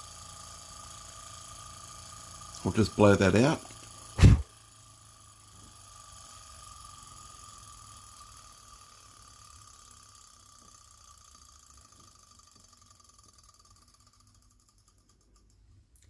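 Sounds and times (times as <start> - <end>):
small engine whirring: 0.0 - 4.1, 4.7 - 15.6.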